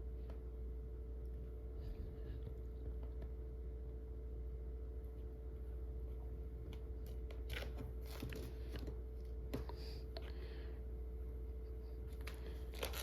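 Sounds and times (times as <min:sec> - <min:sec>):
steady low hum: 0:00.0 - 0:13.0
fingers rubbing plastic film: 0:12.2 - 0:13.0.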